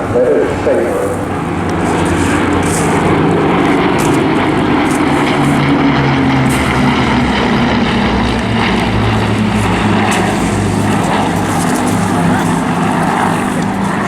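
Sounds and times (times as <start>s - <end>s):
propeller aircraft droning overhead: 0.0s - 14.0s.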